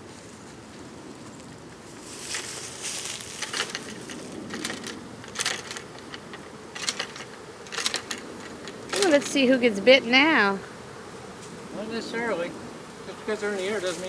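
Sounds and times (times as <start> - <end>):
dry wood crunching and crackling: 1.4 - 9.4, 13.4 - 14.0.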